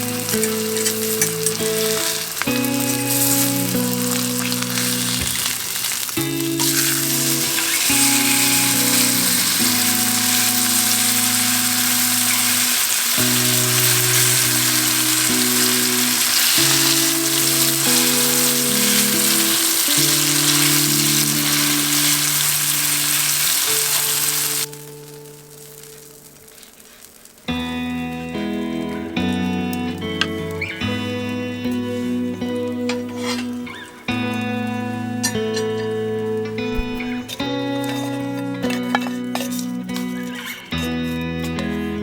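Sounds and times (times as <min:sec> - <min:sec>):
steak sizzling in a hot pan: 0:00.0 - 0:40.9.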